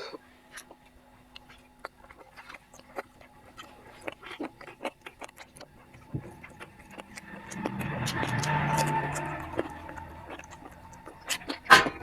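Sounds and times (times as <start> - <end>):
chewing and mouth noises: 0.0 - 7.0.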